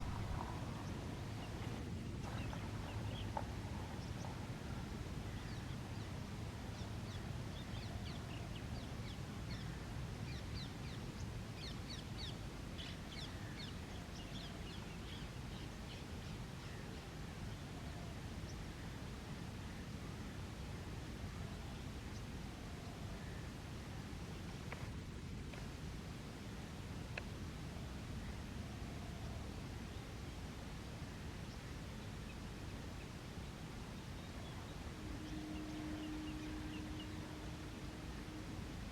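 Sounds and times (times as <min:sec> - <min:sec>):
birds chirping: 0:00.0 - 0:08.8, 0:34.0 - 0:38.9
steady low rumble: 0:00.0 - 0:09.9.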